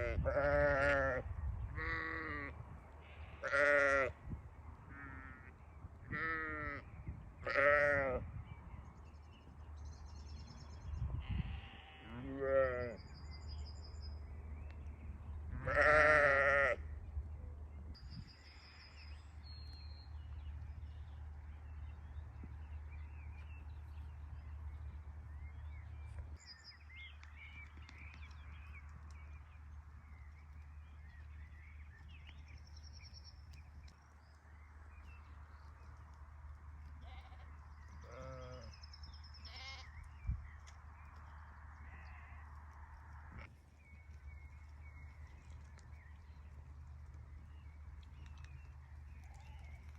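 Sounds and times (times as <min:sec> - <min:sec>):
sheep bleating: 0:01.8 - 0:04.1, 0:07.4 - 0:08.2, 0:11.2 - 0:13.0, 0:15.6 - 0:16.8, 0:39.5 - 0:39.9
small birds chirping: 0:06.1 - 0:17.3, 0:18.0 - 0:42.7, 0:43.4 - 0:49.9.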